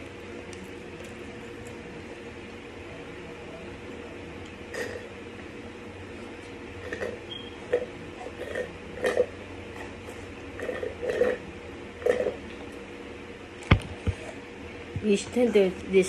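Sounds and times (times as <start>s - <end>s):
person chewing food: 0.0s - 2.6s.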